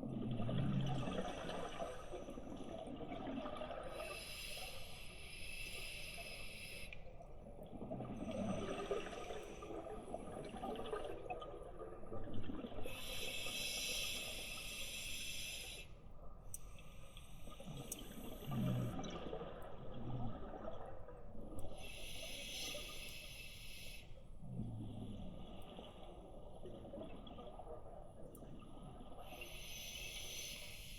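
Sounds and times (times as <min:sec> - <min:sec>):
exhaled air bubbling underwater: 0:00.0 - 0:30.9
hissing inhale through regulator: 0:03.9 - 0:07.1, 0:12.8 - 0:16.0, 0:21.7 - 0:24.3, 0:29.1 - 0:30.9.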